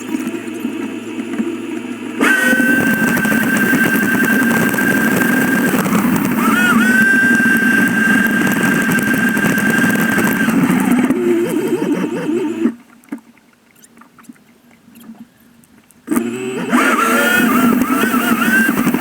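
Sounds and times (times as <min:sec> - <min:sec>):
jet ski engine whining: 0:00.0 - 0:12.8, 0:16.1 - 0:19.0
scattered clicks: 0:02.2 - 0:12.5.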